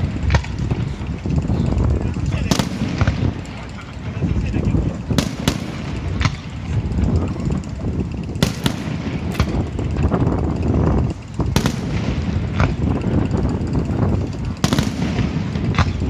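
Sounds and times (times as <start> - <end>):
low rumble of booms and crackle: 0.0 - 16.0
fireworks shells bursting: 2.4 - 6.9, 8.4 - 10.0, 11.2 - 13.2, 14.5 - 16.0.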